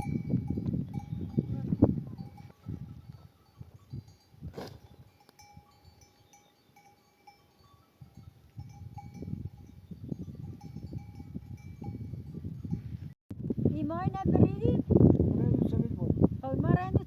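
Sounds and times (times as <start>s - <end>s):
livestock bells clinking: 0.0s - 13.0s.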